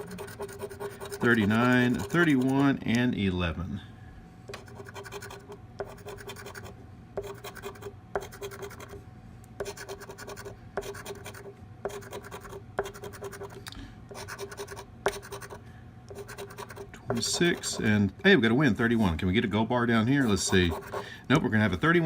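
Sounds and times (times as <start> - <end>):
coin scratching lottery ticket: 0.0 - 2.8, 4.6 - 9.0, 9.6 - 17.8, 20.3 - 21.0.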